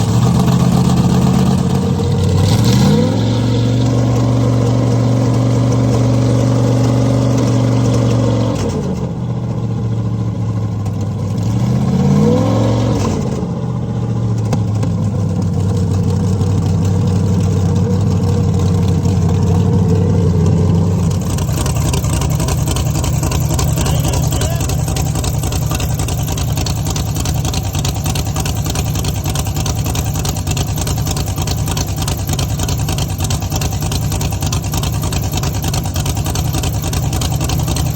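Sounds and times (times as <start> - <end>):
boat engines idling: 14.2 - 37.9.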